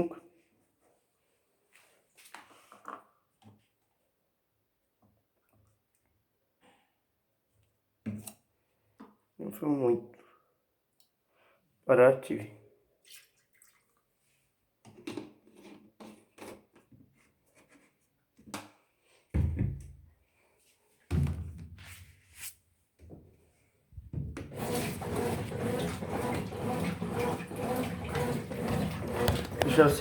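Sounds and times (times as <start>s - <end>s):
knocks and rubbing on washing machine: 24.1s - 30.0s
washing machine running: 24.5s - 30.0s.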